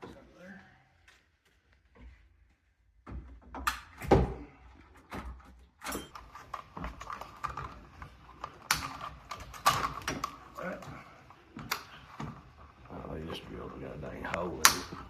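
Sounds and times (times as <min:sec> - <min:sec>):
renovation knocks and clatter: 0:01.8 - 0:15.0.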